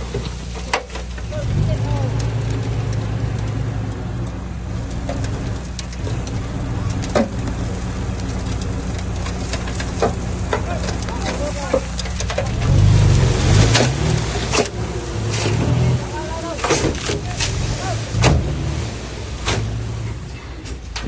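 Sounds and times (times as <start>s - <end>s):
heavy diesel engine running: 0.0s - 20.8s.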